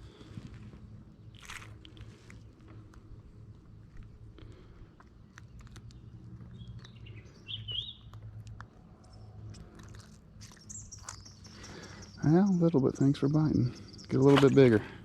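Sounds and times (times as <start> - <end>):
bird warbling chirp: 6.6 - 8.1.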